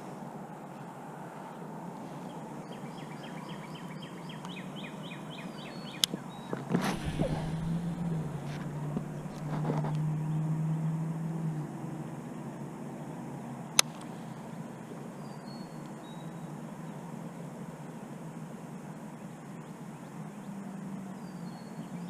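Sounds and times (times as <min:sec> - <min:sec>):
steady low hum: 0:06.6 - 0:11.2.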